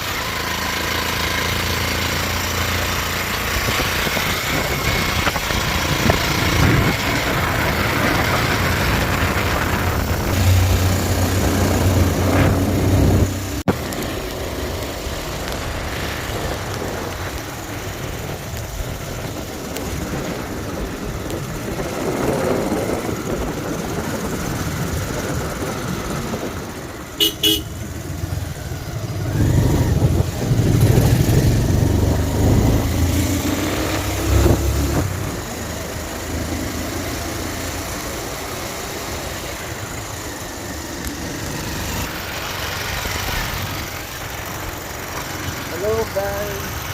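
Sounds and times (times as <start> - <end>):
motorcycle engine running: 0.0 - 46.9
horn beep: 27.2 - 27.9.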